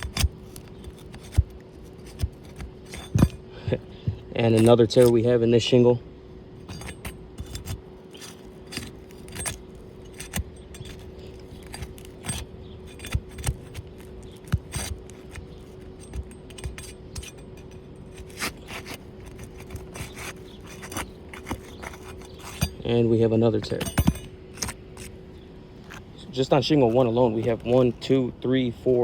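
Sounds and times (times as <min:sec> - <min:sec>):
metal tool scraping shingle: 0:00.0 - 0:03.6, 0:04.4 - 0:05.4, 0:06.6 - 0:25.2, 0:25.8 - 0:28.2
faint steady hum: 0:00.0 - 0:29.0.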